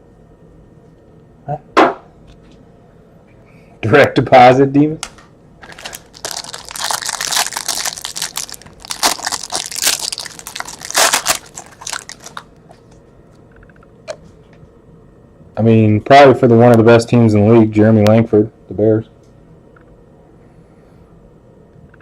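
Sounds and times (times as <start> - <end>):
packaging crinkling and tearing: 5.6 - 12.5.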